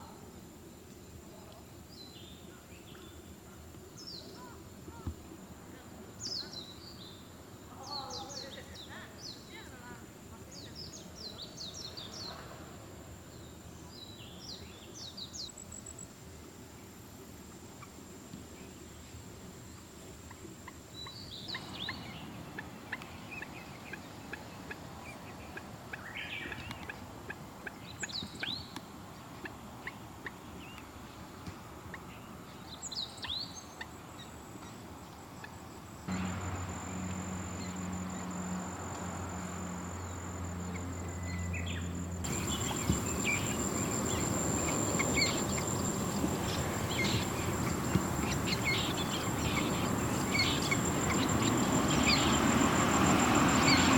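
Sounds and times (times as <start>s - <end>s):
faint high insect whine: 0.0s - 53.9s
moorhen calls: 42.3s - 52.5s.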